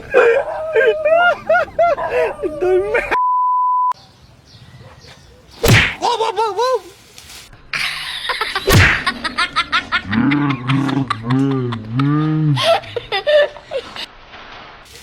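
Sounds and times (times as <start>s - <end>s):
short beep: 3.2s - 4.0s
sharp cracks: 5.6s - 6.0s, 8.7s - 9.1s.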